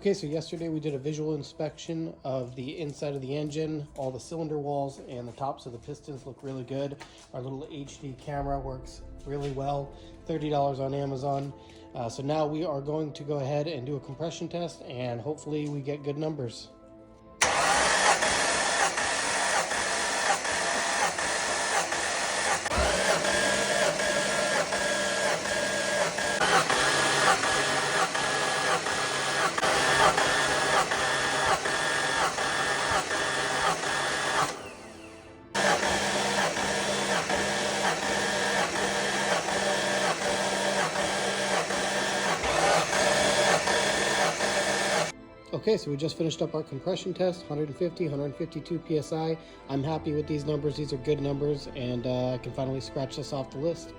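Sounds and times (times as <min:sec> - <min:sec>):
starter motor cranking engine: 0:17.4 - 0:45.2.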